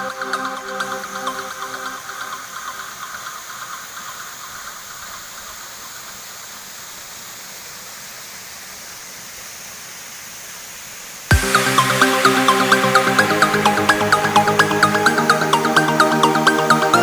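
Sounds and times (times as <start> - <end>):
electronic dance music: 0.0 - 3.7, 11.3 - 17.0
waterfall rushing: 0.0 - 17.0.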